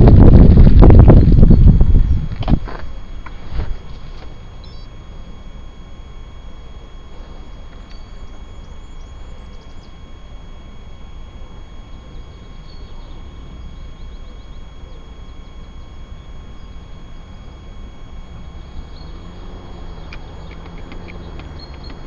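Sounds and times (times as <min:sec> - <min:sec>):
wind rumble while cycling: 0:00.0 - 0:04.3
faint high chirps: 0:04.5 - 0:22.0.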